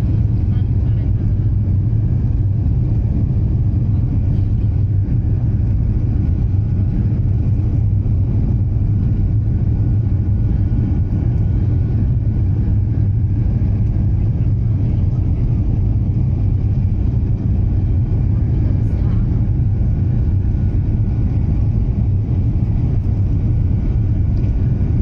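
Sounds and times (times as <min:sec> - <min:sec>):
airplane cabin rumble: 0:00.0 - 0:25.0.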